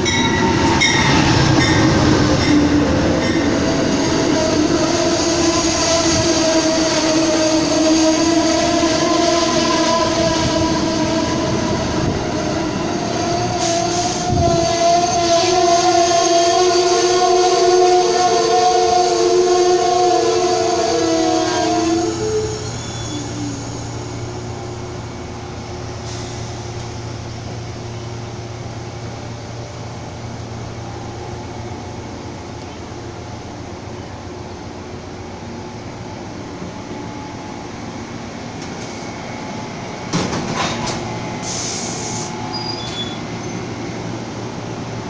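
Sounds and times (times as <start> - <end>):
train rumble and rail noise: 0.0 - 45.0
locomotive horn: 13.0 - 23.6.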